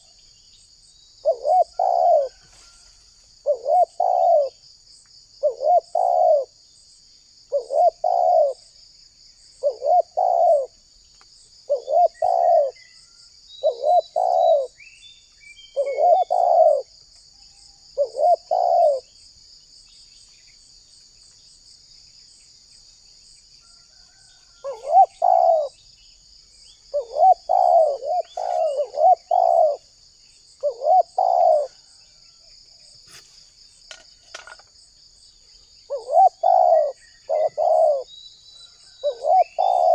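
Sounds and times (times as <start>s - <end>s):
dove cooing: 1.2s - 2.8s, 3.4s - 4.6s, 5.4s - 6.6s, 7.5s - 8.6s, 9.6s - 10.8s, 11.7s - 12.8s, 13.6s - 14.8s, 15.8s - 16.9s, 18.0s - 19.1s, 24.1s - 25.8s, 26.9s - 30.0s, 30.6s - 32.0s, 35.9s - 38.1s, 38.8s - 39.9s.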